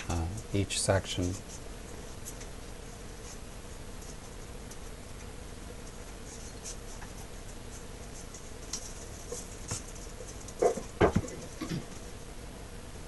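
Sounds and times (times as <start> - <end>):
sharp knocks on wood: 10.6 - 11.4.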